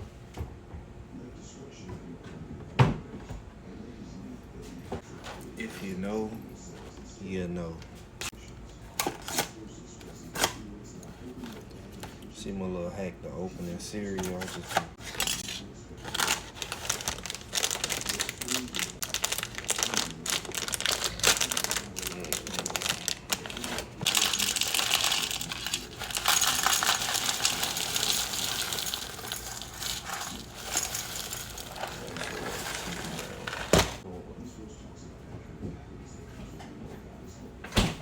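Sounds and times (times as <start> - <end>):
cereal clattering into bowl: 15.0 - 34.0
plastic bag crinkling: 15.0 - 34.0.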